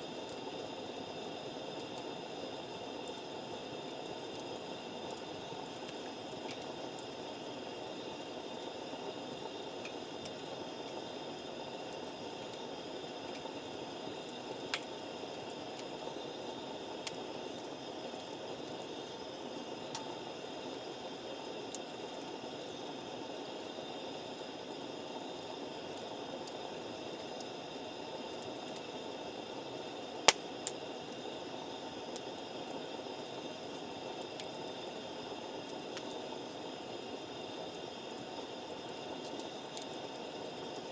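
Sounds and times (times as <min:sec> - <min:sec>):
campfire hissing: 0:00.0 - 0:40.9
fire popping: 0:09.5 - 0:16.1, 0:28.3 - 0:31.3.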